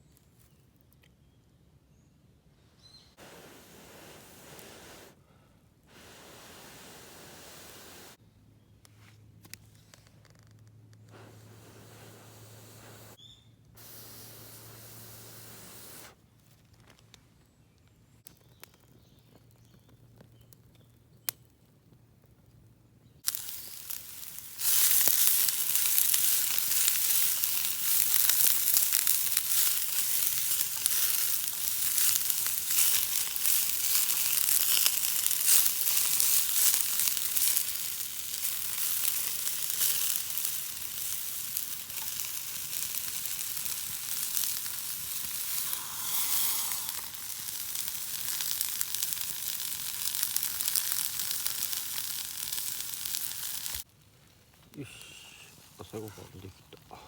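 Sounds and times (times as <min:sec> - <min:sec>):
food sizzling in a pan: 0:23.2 - 0:53.9.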